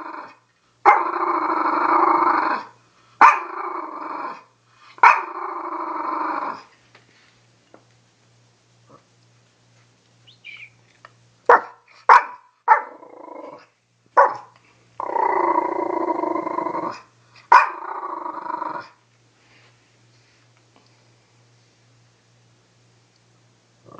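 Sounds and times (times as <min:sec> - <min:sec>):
dog growling: 0:00.0 - 0:02.8, 0:03.4 - 0:04.5, 0:05.1 - 0:06.7, 0:12.8 - 0:13.7, 0:15.0 - 0:19.0
dog barking: 0:03.2 - 0:03.6, 0:05.0 - 0:05.3, 0:11.5 - 0:13.0, 0:14.2 - 0:14.5, 0:17.5 - 0:17.8.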